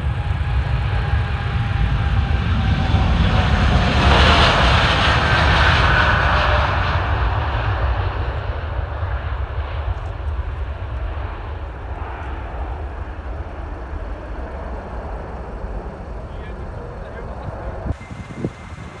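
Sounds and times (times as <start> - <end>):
jet airliner engines: 0.0 - 19.0
steady low rumble: 0.0 - 19.0.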